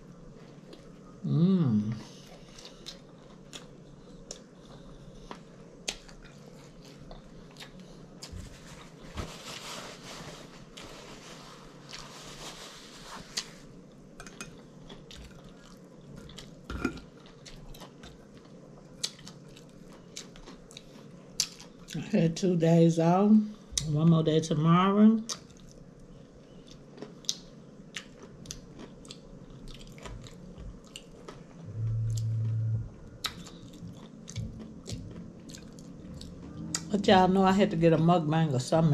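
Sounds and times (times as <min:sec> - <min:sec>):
close chewing with lip smacks: 0:02.0 - 0:08.4, 0:17.2 - 0:22.0, 0:25.2 - 0:31.5, 0:33.2 - 0:36.9
paper napkin rustling: 0:08.4 - 0:13.7.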